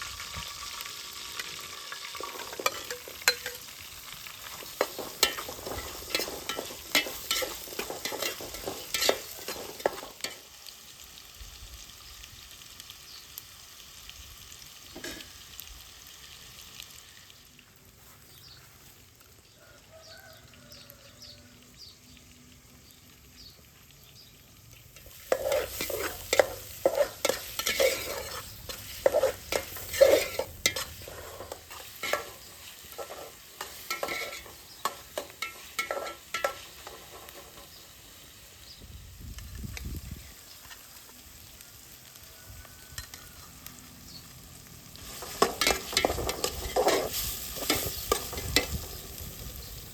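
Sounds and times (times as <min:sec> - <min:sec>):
food sizzling: 0:00.0 - 0:49.9
utensil scraping a frying pan: 0:02.2 - 0:03.7, 0:04.5 - 0:10.4, 0:25.0 - 0:37.8, 0:45.0 - 0:49.0.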